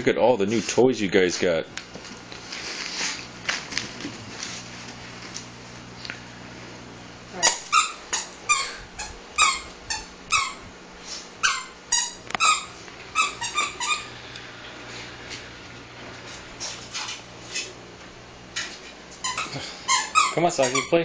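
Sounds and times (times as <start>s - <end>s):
squeaky rubber dog toy: 7.4s - 10.6s, 11.4s - 14.1s, 19.2s - 21.0s.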